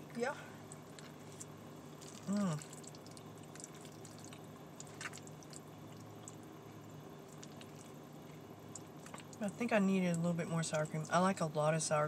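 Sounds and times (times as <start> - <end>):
steady low hum: 0.0 - 12.0
soft wet chewing: 0.6 - 9.5
woman humming mmm: 2.2 - 2.7.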